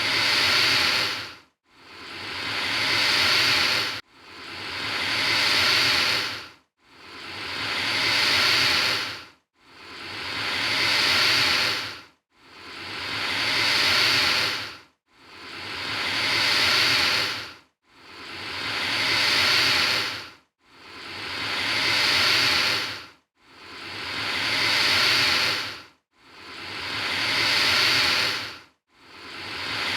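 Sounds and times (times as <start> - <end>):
alligator hissing: 0.0 - 1.3, 1.9 - 4.0, 4.6 - 6.4, 7.1 - 9.2, 9.8 - 12.0, 12.7 - 14.7, 15.4 - 17.4, 18.2 - 20.2, 20.9 - 23.0, 23.7 - 25.8, 26.4 - 28.5, 29.2 - 29.9.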